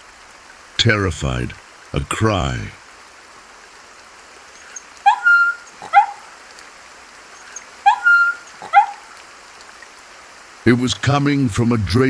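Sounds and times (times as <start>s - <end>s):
faint steady hiss: 0.0s - 12.0s
puppy whimpering and yelping: 5.1s - 6.2s, 7.9s - 9.0s.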